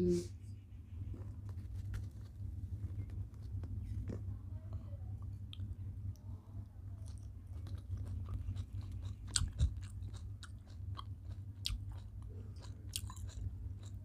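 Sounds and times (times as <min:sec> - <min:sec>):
steady low hum: 0:00.0 - 0:14.0
wet chewing with mouth clicks: 0:01.9 - 0:04.3, 0:05.2 - 0:06.2, 0:06.9 - 0:14.0.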